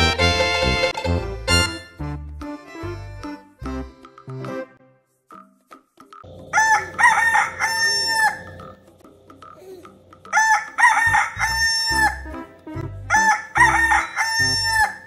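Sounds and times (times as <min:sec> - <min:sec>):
rooster crowing: 0:06.5 - 0:08.7, 0:10.3 - 0:12.3, 0:13.1 - 0:15.0.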